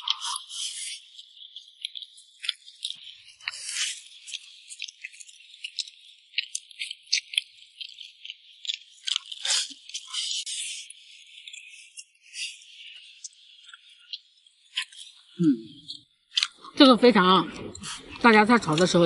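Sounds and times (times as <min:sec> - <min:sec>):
person chewing food: 0:00.0 - 0:16.8, 0:17.4 - 0:19.0
wet mouth clicks and smacks: 0:04.3 - 0:10.2, 0:15.6 - 0:16.8.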